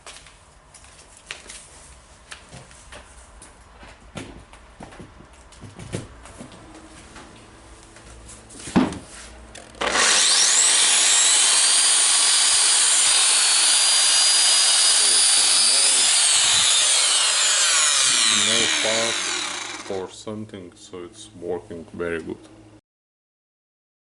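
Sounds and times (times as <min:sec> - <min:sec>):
core drill motor whining: 0:09.6 - 0:20.1.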